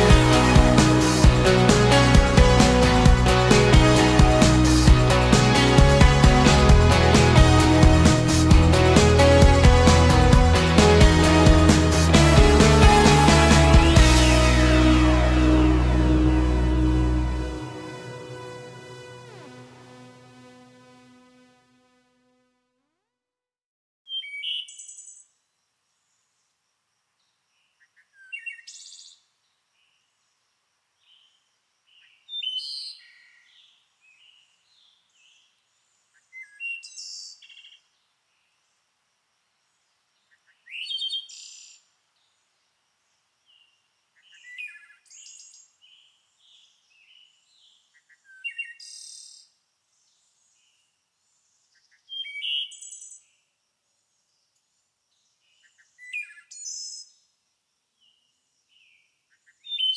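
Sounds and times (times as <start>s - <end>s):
songbird singing high phrases: 24.1s - 25.2s, 40.3s - 41.8s, 44.2s - 49.5s, 51.8s - 53.3s, 58.7s - 59.9s.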